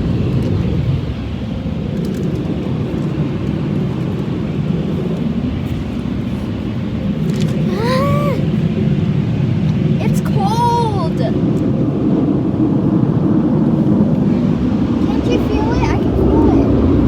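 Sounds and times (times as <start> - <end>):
child exclaiming: 7.6 - 8.5, 10.0 - 11.4.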